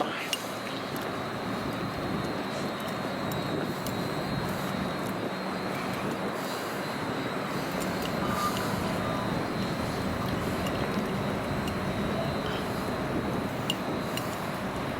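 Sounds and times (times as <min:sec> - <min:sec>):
train rumbling: 0:06.9 - 0:14.9.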